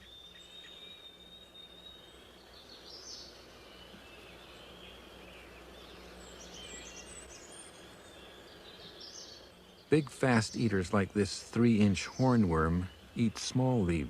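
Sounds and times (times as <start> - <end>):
distant bird chirps: 0.0 - 14.0
low steady hiss: 0.0 - 14.0.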